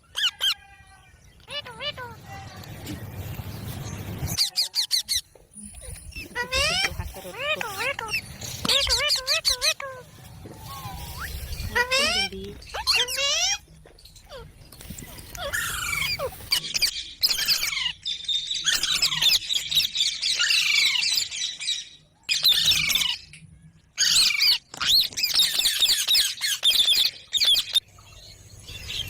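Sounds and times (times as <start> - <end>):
parrot squawking: 0.1 - 0.7, 1.4 - 2.4, 4.3 - 13.6, 14.3 - 18.0.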